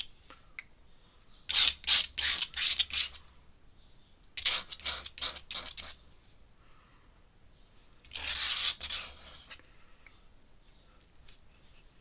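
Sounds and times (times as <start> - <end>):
pen scratching on paper: 8.1 - 9.5.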